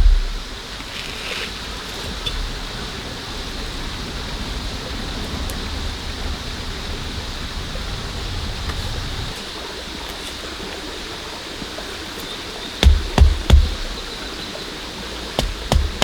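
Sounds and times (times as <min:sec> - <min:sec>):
low rumble: 0:00.0 - 0:00.6
steady rain hiss: 0:00.0 - 0:16.0.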